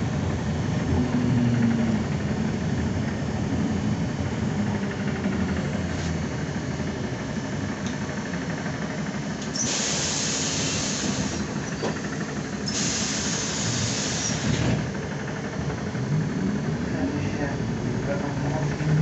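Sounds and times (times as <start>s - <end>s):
bus low rumble: 0.0s - 19.0s
compressed air hissing: 9.5s - 11.6s, 12.6s - 14.7s.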